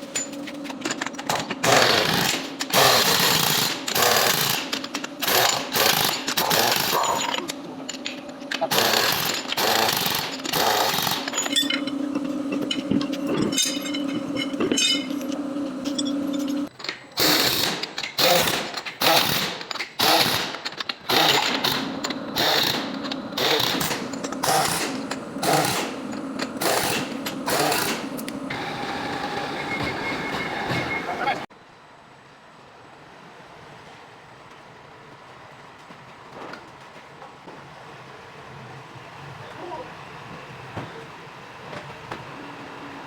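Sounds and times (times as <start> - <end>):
power tool rattling: 0.9 - 29.9.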